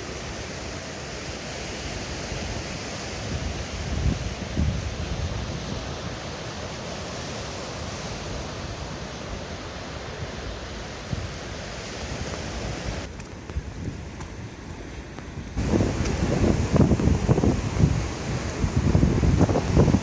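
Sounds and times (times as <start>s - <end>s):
sea surf: 0.0s - 13.1s, 15.6s - 20.0s
wind buffeting microphone: 3.3s - 6.0s, 12.1s - 20.0s.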